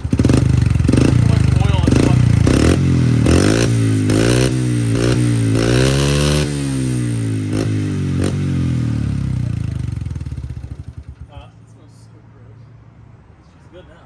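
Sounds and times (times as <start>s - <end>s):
motorbike engine revving: 0.0s - 11.4s.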